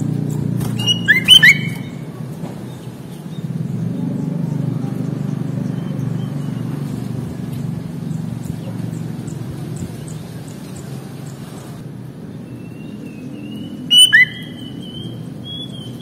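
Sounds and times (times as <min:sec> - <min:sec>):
loud low rumbling: 0:00.0 - 0:11.8
faint high bird chirps: 0:00.8 - 0:02.0, 0:12.4 - 0:16.0.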